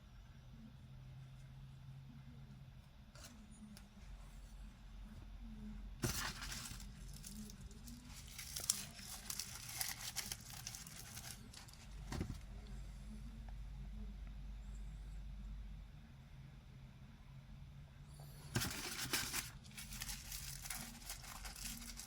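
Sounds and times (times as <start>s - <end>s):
packaging crinkling and tearing: 6.0s - 11.9s, 18.6s - 22.0s.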